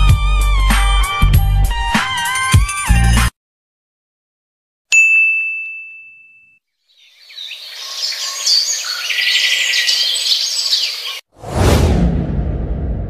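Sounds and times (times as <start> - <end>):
high-pitched ding: 5.0 - 6.6
birds chirping and singing: 6.9 - 11.3.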